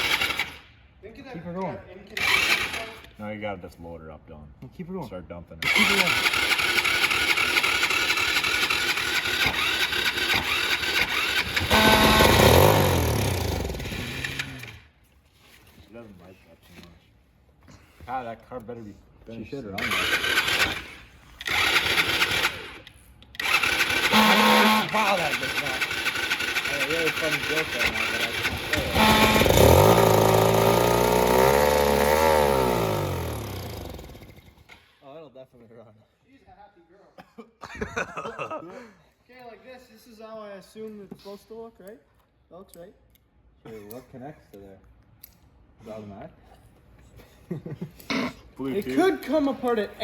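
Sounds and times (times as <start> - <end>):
small gas engine sputtering: 0.0 - 0.7, 2.2 - 3.1, 5.6 - 14.9, 19.8 - 35.0.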